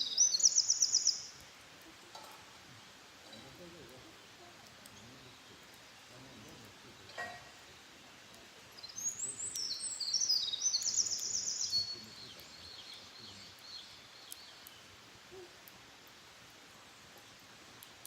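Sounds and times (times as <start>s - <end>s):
songbird trilling: 0.0s - 1.3s, 8.8s - 14.8s
faint bird calls: 8.9s - 15.7s.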